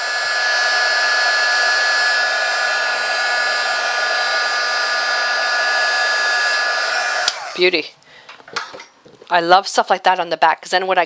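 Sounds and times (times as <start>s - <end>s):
heat gun blowing air: 0.0s - 7.8s.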